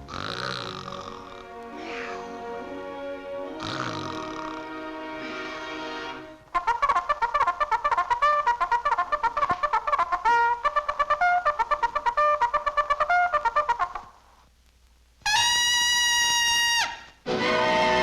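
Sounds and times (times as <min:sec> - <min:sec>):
cartoon trumpet music: 0:00.0 - 0:14.0, 0:15.3 - 0:18.0.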